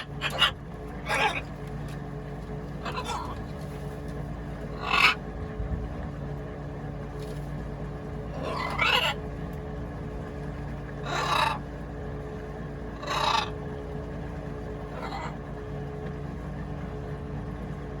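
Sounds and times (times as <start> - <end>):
parrot squawking: 0.0 - 1.6, 2.8 - 3.5, 4.7 - 5.2, 8.3 - 9.2, 11.0 - 11.6, 13.0 - 13.6, 14.9 - 15.4
steady low hum: 0.0 - 18.0.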